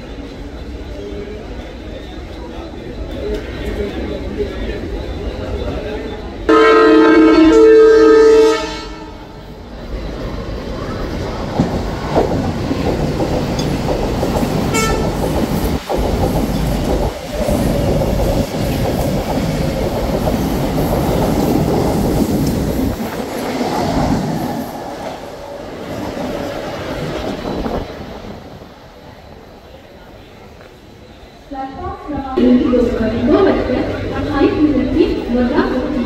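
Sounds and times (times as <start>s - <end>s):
train horn: 6.5s - 9.4s, 14.7s - 15.2s
train wheels clattering on rails: 10.2s - 28.8s.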